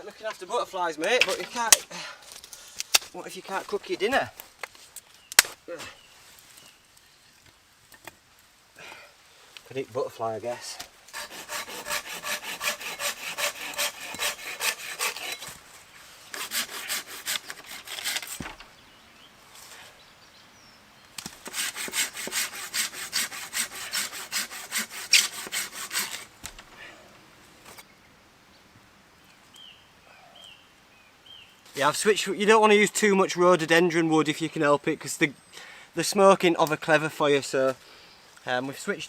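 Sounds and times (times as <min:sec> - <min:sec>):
hand saw cutting log: 0:11.1 - 0:15.6, 0:16.3 - 0:18.6, 0:21.2 - 0:26.3.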